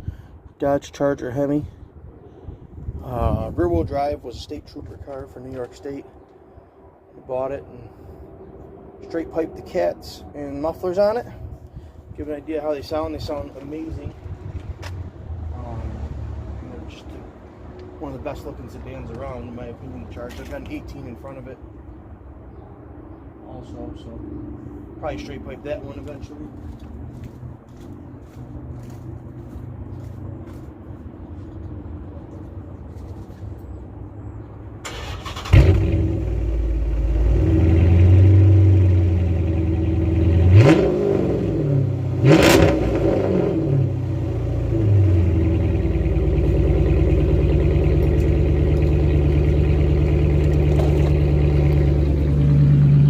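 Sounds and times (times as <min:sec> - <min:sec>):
car engine starting and idling: 0:34.8 - 0:53.0
engine revving blips: 0:37.0 - 0:44.1, 0:44.7 - 0:53.0.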